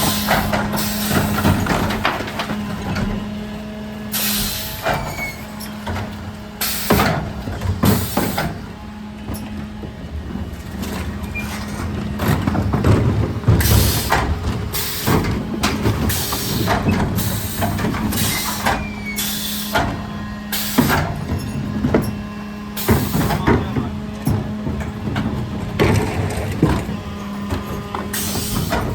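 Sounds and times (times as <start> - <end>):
truck engine and hydraulics hum: 0.0 - 28.9
sharp air hisses: 4.1 - 4.8.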